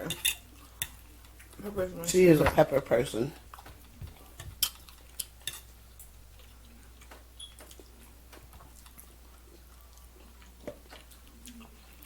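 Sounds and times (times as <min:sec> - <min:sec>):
cutlery tapping on plates: 0:00.0 - 0:01.0.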